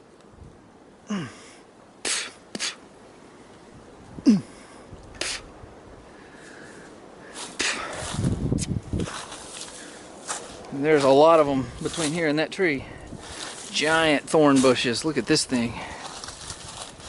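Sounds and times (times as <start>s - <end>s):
branches snapping: 15.9s - 17.0s.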